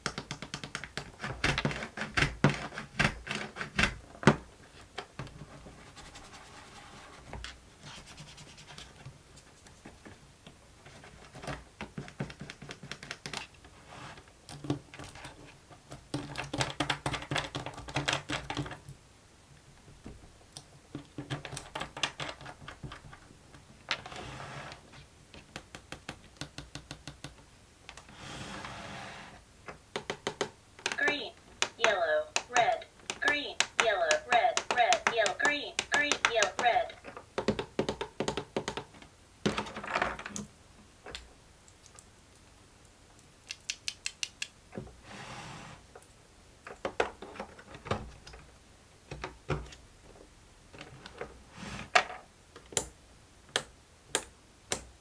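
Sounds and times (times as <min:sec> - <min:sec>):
scratching on plastic: 0:00.0 - 0:04.1.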